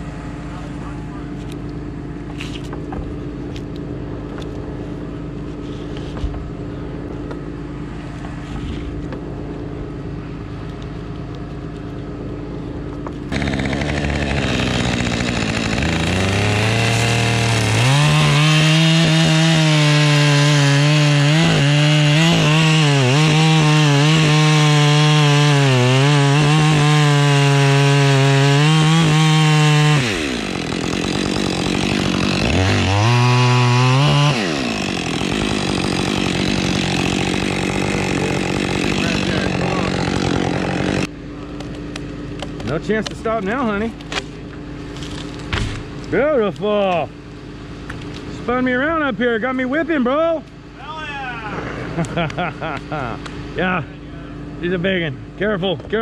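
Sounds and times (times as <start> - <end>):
chainsaw cutting wood: 9.0 - 46.2.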